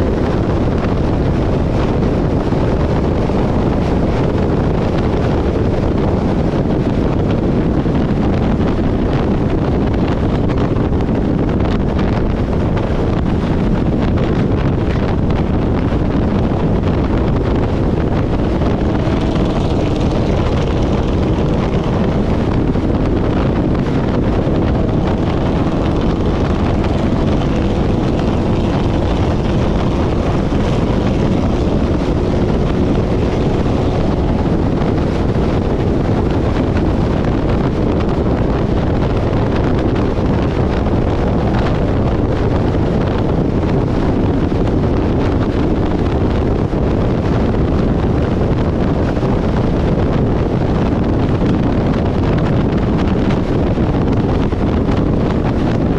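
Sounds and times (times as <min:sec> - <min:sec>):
faint engine hum: 0:00.0 - 0:55.9
vehicle noise: 0:00.0 - 0:55.9
wind rushing over microphone: 0:00.0 - 0:55.9.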